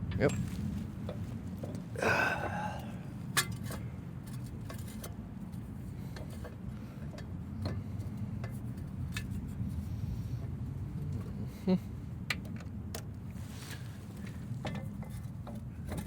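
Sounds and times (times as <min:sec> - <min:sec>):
steady low hum: 0:00.0 - 0:16.0
light metal clicks and taps: 0:03.3 - 0:09.6, 0:12.2 - 0:13.2.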